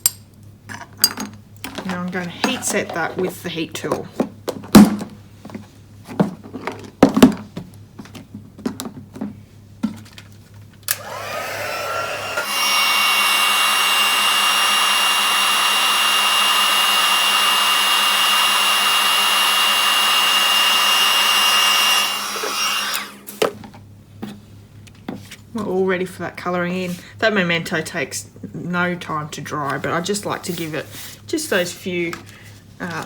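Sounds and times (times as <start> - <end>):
heat tool whining and blowing: 2.1 - 3.7, 10.9 - 23.4.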